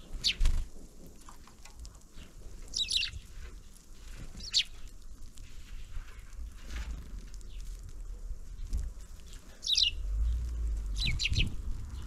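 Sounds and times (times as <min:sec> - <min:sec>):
small birds high calls: 0:00.0 - 0:00.5, 0:01.9 - 0:03.4, 0:04.3 - 0:05.0, 0:08.5 - 0:12.0.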